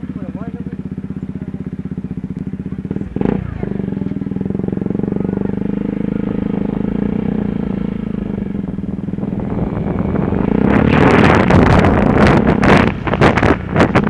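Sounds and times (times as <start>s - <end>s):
motorcycle engine running: 0.0s - 14.0s
wind on microphone: 5.5s - 14.0s.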